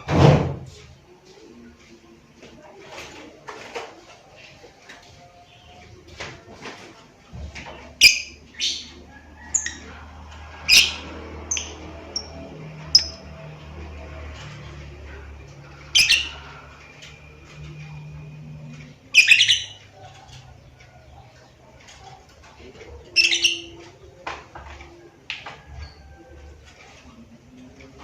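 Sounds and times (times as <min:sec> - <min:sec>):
bird chirping and squawking: 0:08.0 - 0:13.6, 0:15.7 - 0:16.8, 0:19.1 - 0:20.0, 0:23.1 - 0:23.8.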